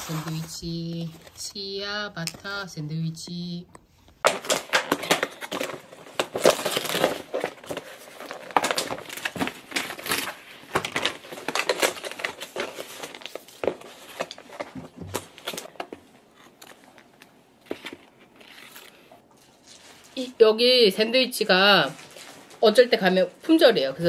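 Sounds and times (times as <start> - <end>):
sandwich wrapping crinkling: 4.3 - 20.2.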